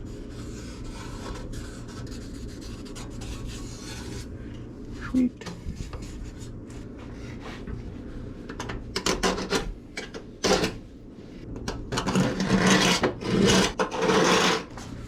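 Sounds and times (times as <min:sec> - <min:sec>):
hand tool scraping sheet steel: 0:11.9 - 0:14.8.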